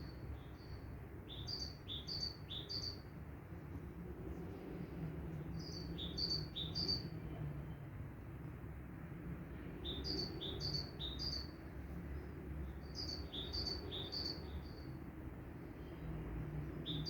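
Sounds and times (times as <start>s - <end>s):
songbird chirping: 12.7s - 14.9s.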